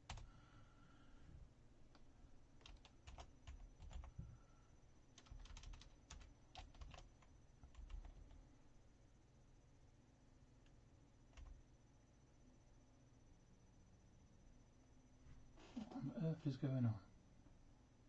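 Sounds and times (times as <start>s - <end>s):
faint keyboard typing: 0.0s - 0.4s, 1.8s - 4.5s, 5.1s - 8.6s, 10.6s - 11.8s.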